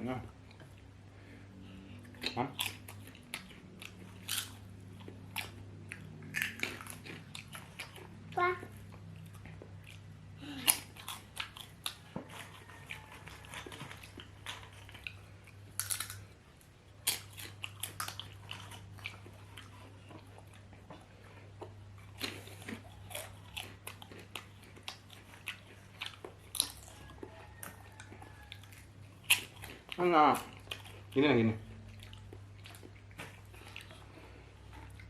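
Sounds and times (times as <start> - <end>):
person chewing with mouth clicks: 1.7 - 35.0.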